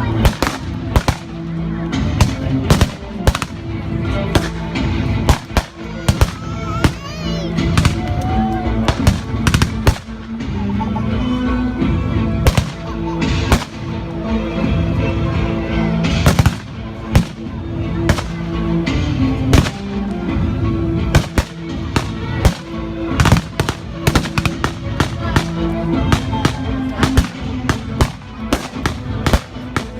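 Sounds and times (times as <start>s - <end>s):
background music: 0.0s - 29.9s
blank gunshots: 0.2s - 1.4s, 2.2s - 3.6s, 8.9s - 10.2s, 12.4s - 12.9s, 13.5s - 14.0s, 18.1s - 18.4s, 19.5s - 20.0s, 21.1s - 29.9s.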